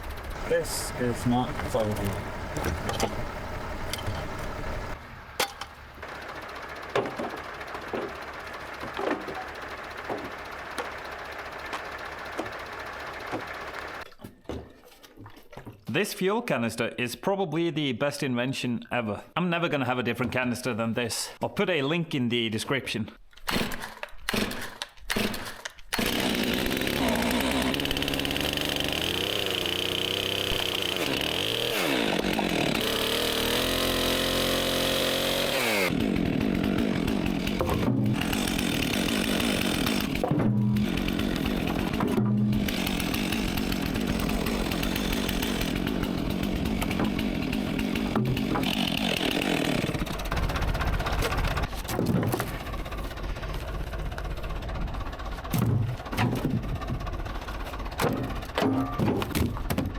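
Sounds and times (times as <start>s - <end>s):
chainsaw engine revving: 0.0s - 5.0s, 23.5s - 51.7s.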